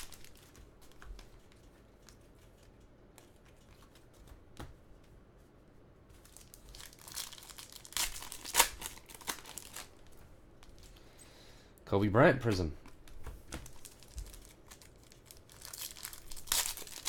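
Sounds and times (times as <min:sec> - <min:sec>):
plastic wrapper crinkling and tearing: 0:00.0 - 0:02.2, 0:06.2 - 0:11.0, 0:13.5 - 0:17.0.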